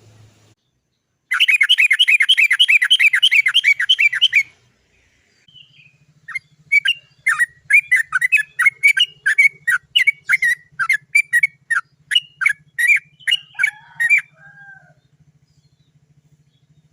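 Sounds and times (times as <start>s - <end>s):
faint low hum: 0.0s - 1.5s
bird calling sharp notes: 1.3s - 4.6s, 5.4s - 15.0s.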